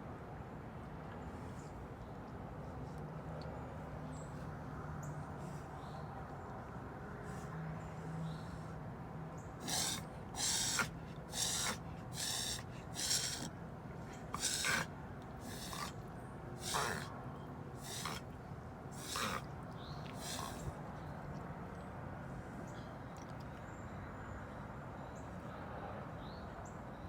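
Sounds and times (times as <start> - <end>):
dog snorting through nose: 9.6 - 16.0, 16.6 - 17.2, 17.8 - 18.4, 19.0 - 20.8.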